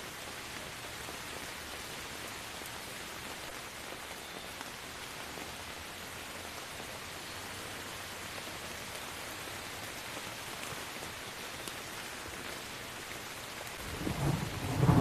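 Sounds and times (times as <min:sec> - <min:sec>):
rain pattering on surfaces: 0:00.0 - 0:15.0.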